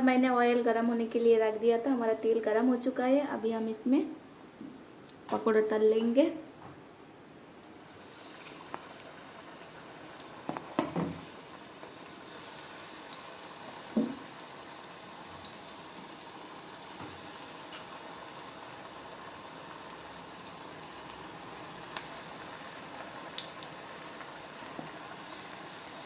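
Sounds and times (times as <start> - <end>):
batter sizzling in hot oil: 7.8 - 26.0.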